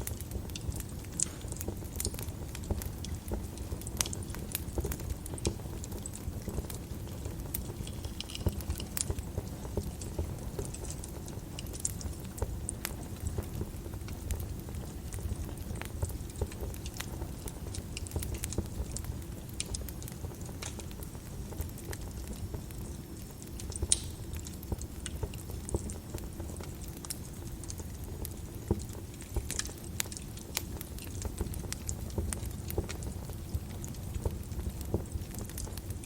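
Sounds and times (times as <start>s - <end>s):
low rumble of flames: 0.0s - 36.0s
wood fire crackling: 0.0s - 36.0s.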